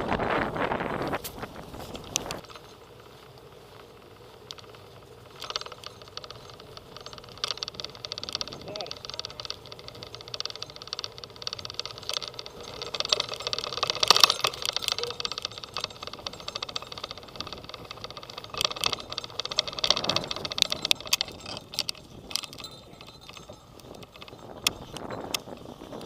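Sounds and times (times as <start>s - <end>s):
bicycle rattling and clicking: 0.0s - 26.0s
road noise: 0.0s - 26.0s.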